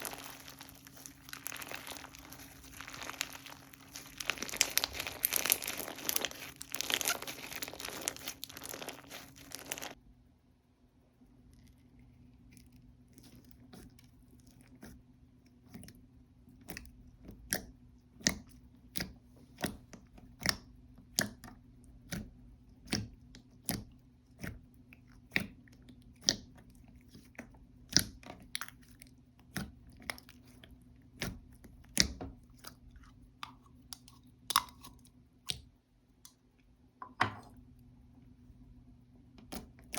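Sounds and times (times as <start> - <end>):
slime crackling: 0.0 - 10.0
slime squishing and popping: 0.0 - 10.0.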